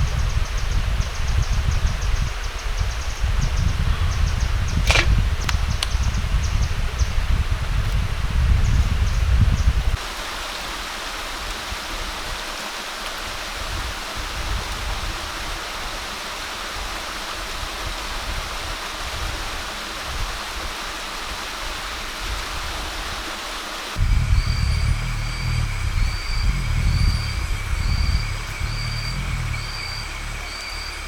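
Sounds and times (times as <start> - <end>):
rushing water: 4.8 - 24.1
deep rumble: 24.0 - 31.0.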